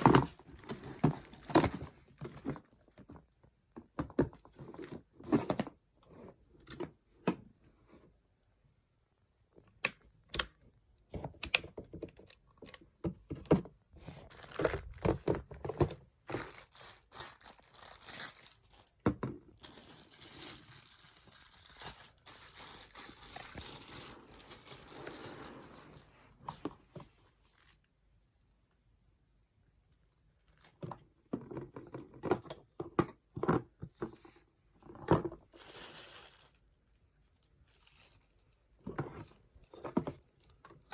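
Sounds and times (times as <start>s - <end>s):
plastic and cardboard rustling: 0.0s - 8.1s, 11.2s - 27.9s.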